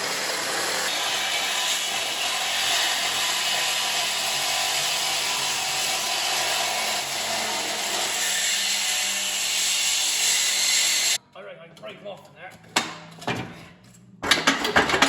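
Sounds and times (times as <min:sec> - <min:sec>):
power tool cutting metal: 0:00.0 - 0:11.2.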